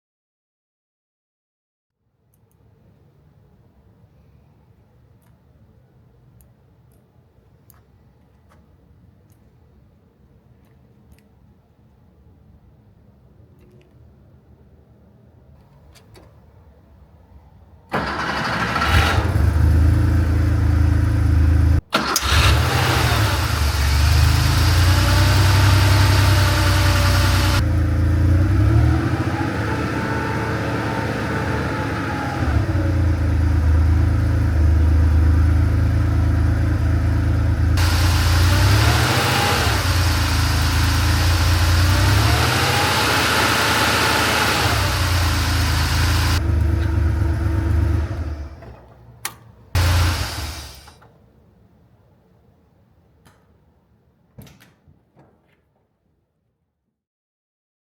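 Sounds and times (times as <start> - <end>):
car engine idling: 17.9 - 28.7, 29.3 - 48.6, 49.8 - 50.9
car engine starting: 17.9 - 49.1, 49.8 - 51.0.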